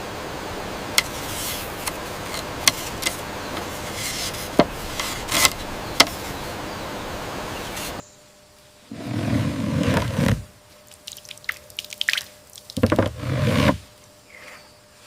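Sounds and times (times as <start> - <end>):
steady hiss: 0.0 - 14.6
scraping: 1.0 - 6.5, 12.8 - 13.8.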